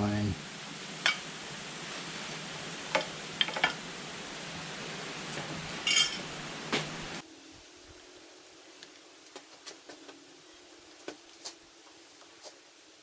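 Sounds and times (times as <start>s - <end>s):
steady hiss: 0.0s - 13.0s
metal tools clinking: 5.8s - 6.2s.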